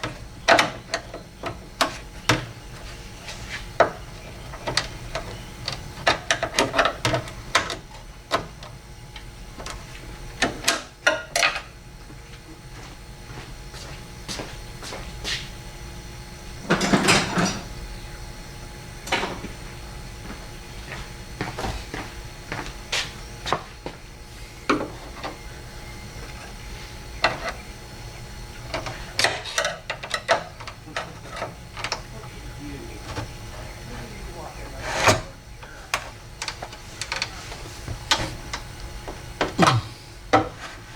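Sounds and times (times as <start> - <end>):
hard parts clicking and clattering: 28.7 - 32.4.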